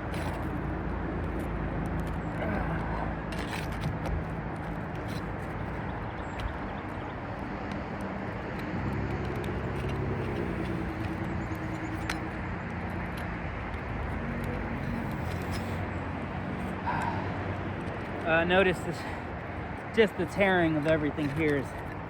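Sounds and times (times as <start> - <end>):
road traffic rumble: 0.0 - 22.0
vehicle engine wavering: 0.0 - 22.0
faint ticks and scrapes: 1.2 - 16.0, 19.7 - 22.0.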